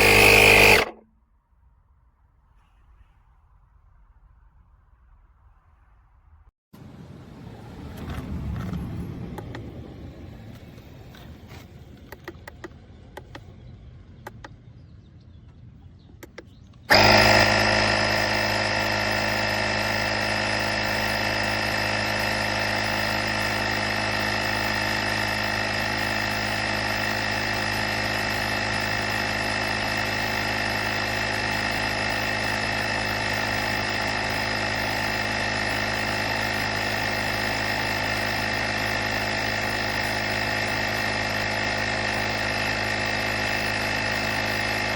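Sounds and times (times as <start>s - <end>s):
motor humming: 0.0s - 1.1s, 9.3s - 13.6s, 16.1s - 44.9s.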